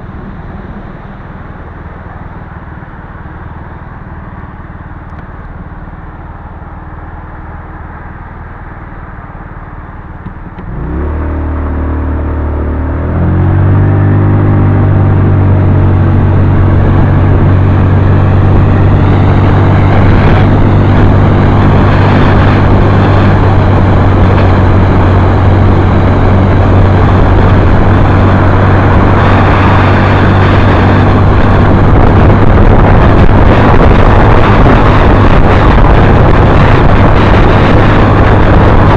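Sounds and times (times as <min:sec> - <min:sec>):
road noise: 0:00.0 - 0:38.9
rushing wind: 0:00.0 - 0:38.9
motorcycle engine revving: 0:10.2 - 0:38.9.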